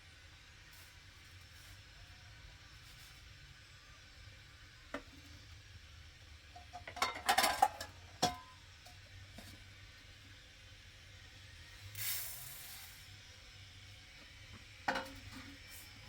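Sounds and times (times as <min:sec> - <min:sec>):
dishes being handled: 0:06.6 - 0:08.5, 0:14.9 - 0:15.4
clinking dishes: 0:06.6 - 0:08.6, 0:14.9 - 0:15.3.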